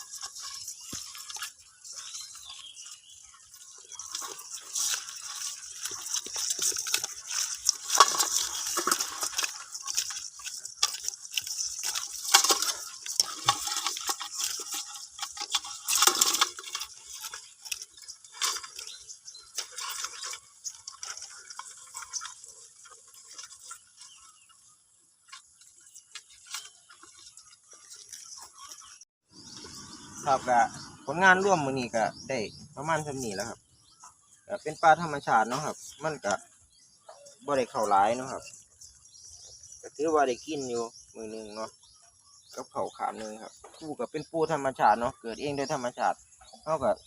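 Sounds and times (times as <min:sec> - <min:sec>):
scraping and clicking from handling: 0:00.0 - 0:29.0.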